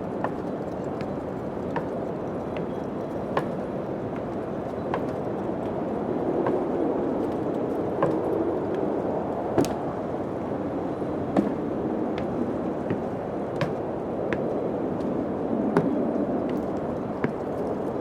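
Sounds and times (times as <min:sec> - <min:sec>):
wind blowing: 0:00.0 - 0:18.0
sharp knocks: 0:03.4 - 0:03.6, 0:06.4 - 0:06.8, 0:08.0 - 0:08.4, 0:09.6 - 0:10.0, 0:11.3 - 0:14.6, 0:15.8 - 0:17.4.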